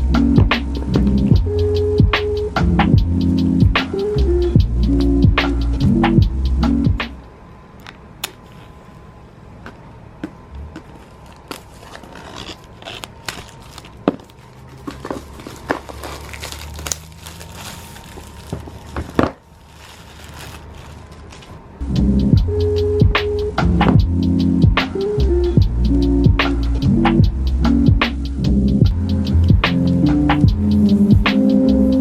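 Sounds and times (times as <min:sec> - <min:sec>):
packaging crinkling and tearing: 0:10.9 - 0:21.8.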